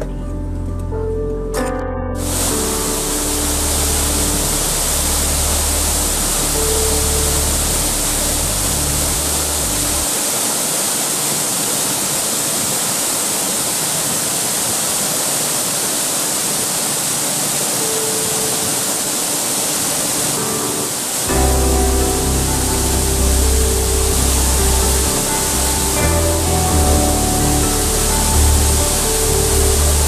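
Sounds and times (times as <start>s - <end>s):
relaxing background music: 0.0s - 10.1s, 17.7s - 30.0s
waterfall roaring: 2.2s - 30.0s.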